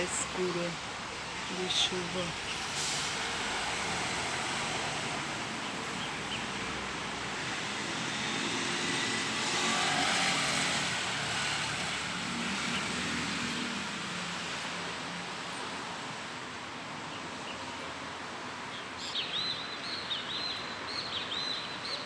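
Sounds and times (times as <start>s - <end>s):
vehicle passing by: 3.1s - 14.8s.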